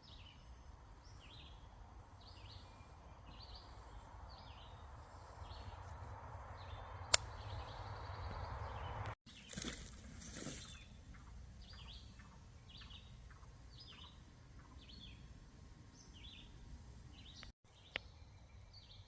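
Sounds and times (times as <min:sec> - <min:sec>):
low outdoor background: 0:00.0 - 0:19.0
sharp click: 0:07.1 - 0:07.5.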